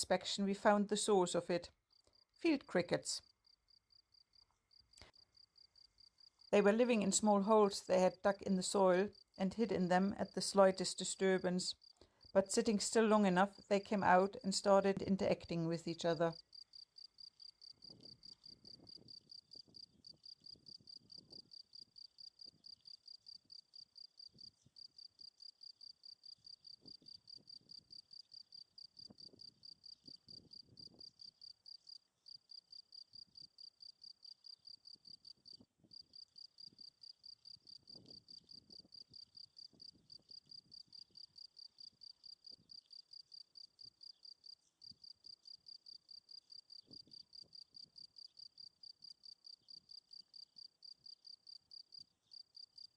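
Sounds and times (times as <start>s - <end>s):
crickets chirping: 3.2s - 8.1s, 15.6s - 52.9s.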